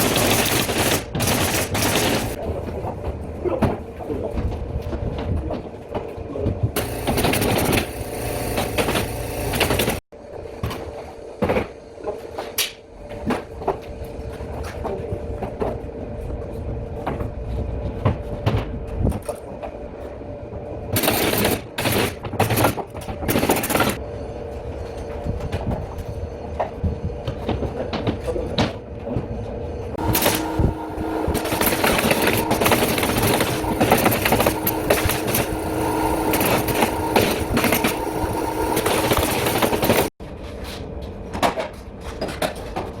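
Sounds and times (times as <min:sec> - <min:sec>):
machine hum: 0:00.0 - 0:02.6, 0:06.6 - 0:12.0, 0:28.8 - 0:40.2.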